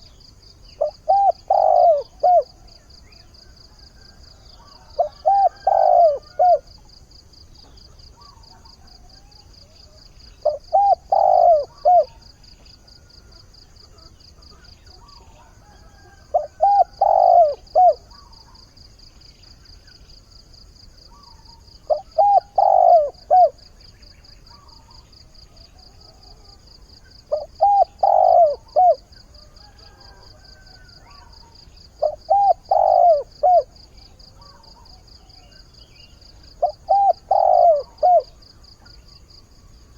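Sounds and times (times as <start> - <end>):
dove cooing: 0.8 - 2.8, 3.6 - 6.8, 7.6 - 18.7, 21.1 - 23.7, 24.5 - 39.0.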